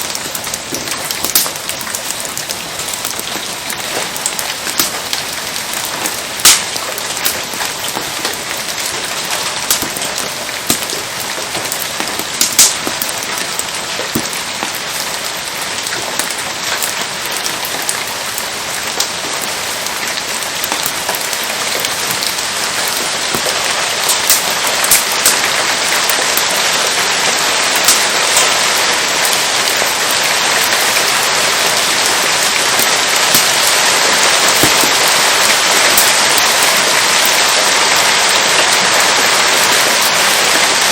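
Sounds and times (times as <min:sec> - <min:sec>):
steady rain falling: 0:00.0 - 0:40.9
sharp pops: 0:00.6 - 0:09.0, 0:09.6 - 0:15.0, 0:34.5 - 0:35.6.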